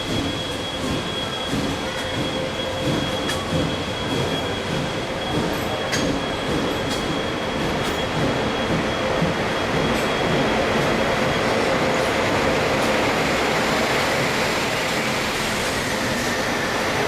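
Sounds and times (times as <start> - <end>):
train rolling rumble: 0.0 - 17.0.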